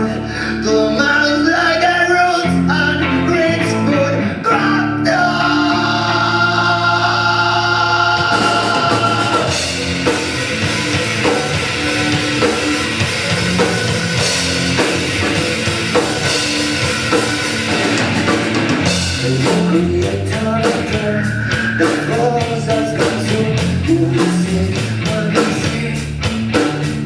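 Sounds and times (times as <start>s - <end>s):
live rock band playing: 0.0s - 27.0s
drum kit beat: 5.4s - 27.0s.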